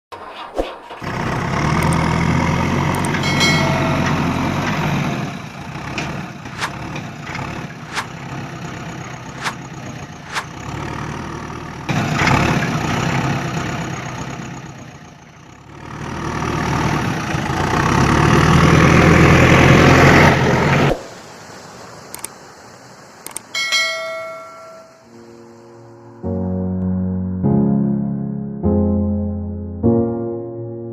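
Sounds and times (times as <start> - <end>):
tractor engine running: 0.8 - 25.4
sharp clicks: 1.8 - 2.1, 2.9 - 3.2, 22.1 - 22.4, 23.2 - 23.5.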